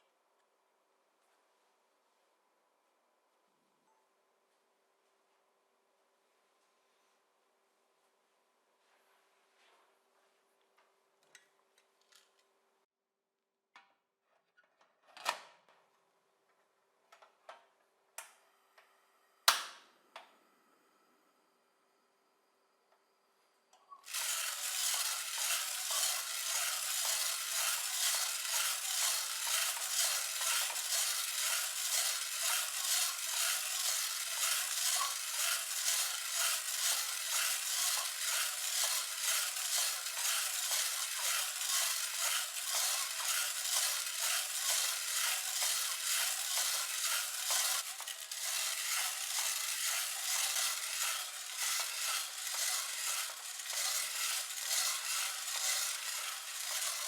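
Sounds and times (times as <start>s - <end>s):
coffee beans stirred in a pan: 24.1s - 57.0s.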